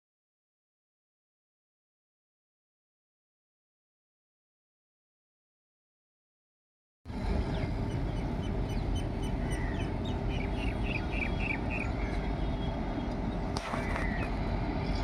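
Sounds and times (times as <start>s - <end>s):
steady low rumble: 7.1s - 15.0s
bird calls: 7.4s - 15.0s.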